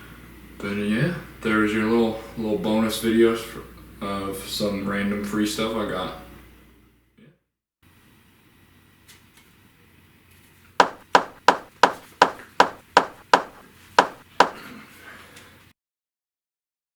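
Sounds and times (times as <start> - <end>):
sharp knocks: 10.8 - 14.6.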